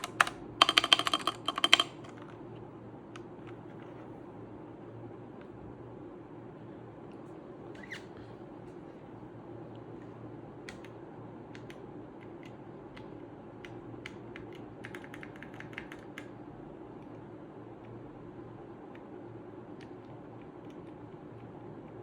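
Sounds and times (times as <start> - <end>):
mechanical keyboard keystrokes: 0.0 - 2.3, 10.6 - 16.3
steady low hum: 0.0 - 22.0.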